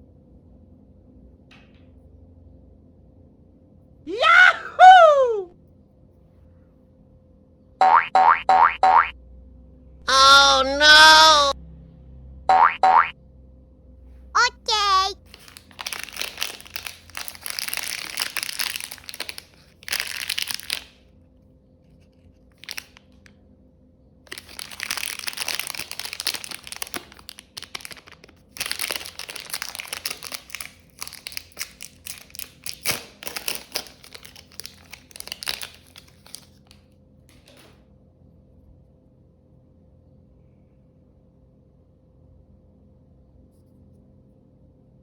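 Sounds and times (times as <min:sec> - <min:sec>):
crinkling and crumpling: 0:15.2 - 0:21.0, 0:21.9 - 0:23.3, 0:24.3 - 0:37.7.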